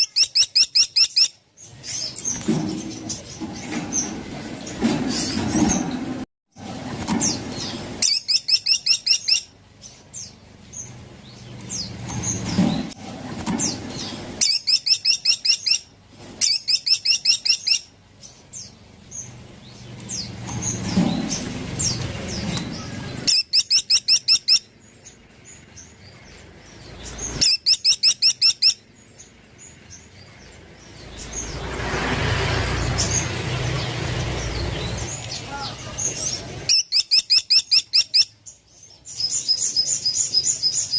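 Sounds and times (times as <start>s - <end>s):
woodpecker rattling calls: 0.0s - 1.3s, 8.0s - 9.5s, 14.0s - 17.9s, 20.1s - 24.7s, 27.0s - 28.9s, 36.2s - 38.4s
soft bird chirps: 13.6s - 31.8s.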